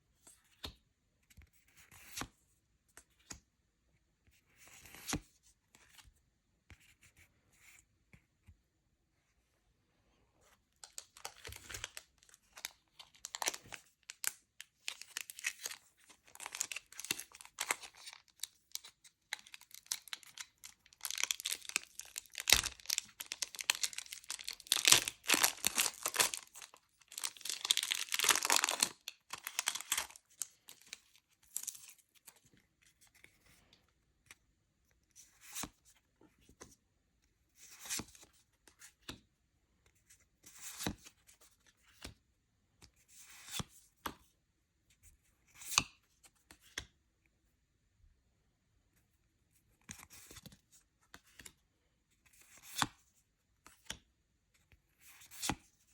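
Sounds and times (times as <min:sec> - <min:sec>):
card packaging tearing and crinkling: 0:10.8 - 0:31.9.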